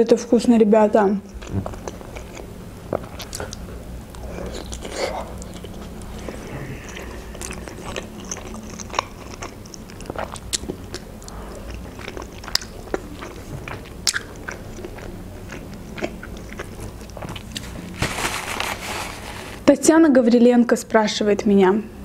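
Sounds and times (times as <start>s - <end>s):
person chewing with mouth clicks: 1.2s - 18.0s.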